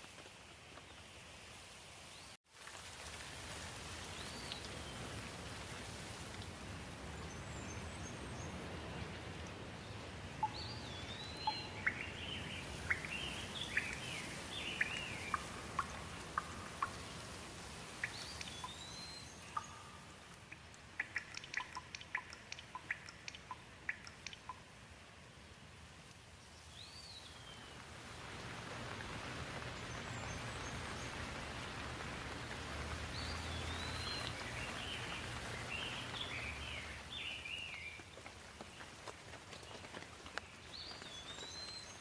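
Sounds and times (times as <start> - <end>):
steady rain hiss: 0.0 - 42.0
birds calling: 10.4 - 17.3, 29.5 - 38.0.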